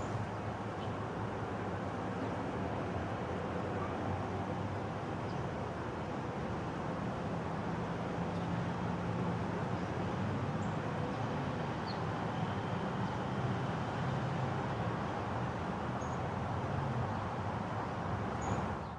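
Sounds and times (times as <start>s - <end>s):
distant road traffic rumble: 0.0s - 18.9s.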